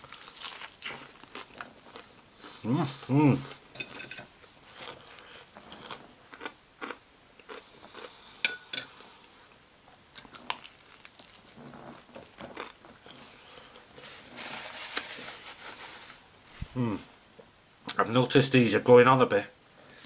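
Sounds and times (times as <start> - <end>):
chewing crispy chicken: 0.0 - 3.6, 4.6 - 8.4, 10.1 - 14.1.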